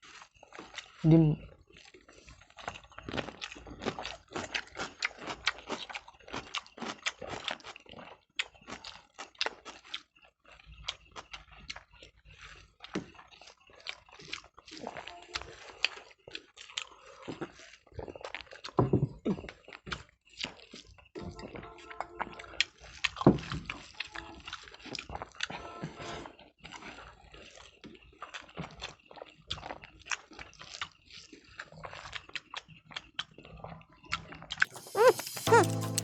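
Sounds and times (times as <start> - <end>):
clicking chewing mouth sounds: 0.1 - 21.0, 22.3 - 25.4, 27.3 - 36.0
brief vocal sound: 34.7 - 36.0.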